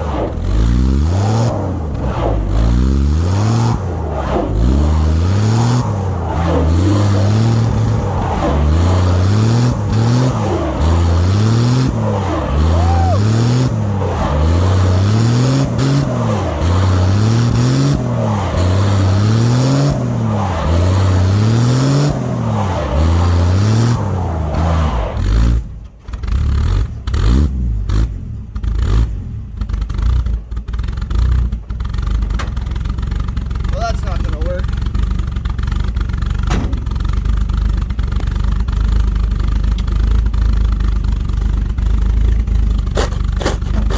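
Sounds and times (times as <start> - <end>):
pickup truck engine revving: 0.0 - 28.2, 40.2 - 43.9.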